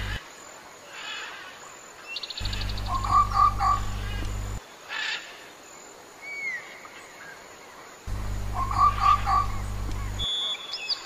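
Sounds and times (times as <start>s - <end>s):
steady low hum: 0.0s - 0.3s, 2.4s - 4.6s, 8.1s - 10.3s
bird trilling ticks: 2.3s - 4.6s, 8.1s - 10.3s.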